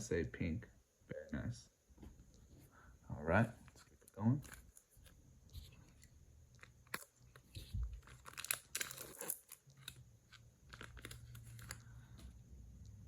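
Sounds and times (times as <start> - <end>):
cellophane tearing and crinkling: 6.5 - 11.9.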